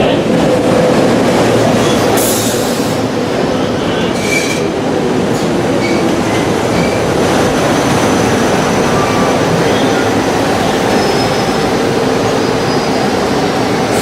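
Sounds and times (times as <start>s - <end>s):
train wheels rushing on rail: 0.0s - 14.0s
high-pitched wheel squeals: 10.9s - 11.6s.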